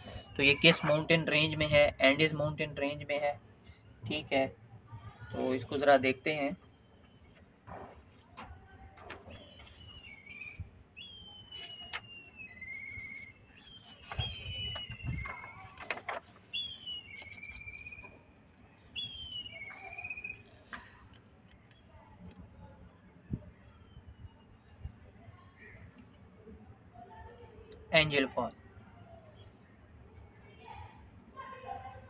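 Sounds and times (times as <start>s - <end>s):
bird whistling descending notes: 9.3s - 15.7s, 16.5s - 18.2s, 18.9s - 20.6s
paper rustling on clipboard: 11.4s - 19.0s.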